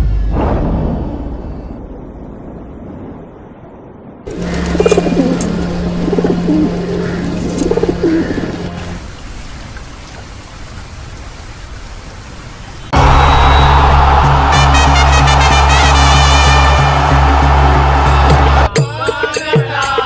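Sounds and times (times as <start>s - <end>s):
pigeons cooing: 4.3s - 8.8s
loud music: 13.0s - 20.0s.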